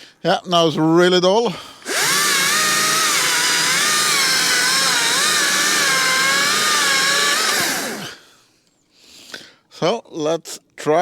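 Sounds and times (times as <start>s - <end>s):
battery chainsaw cutting: 1.8s - 8.2s.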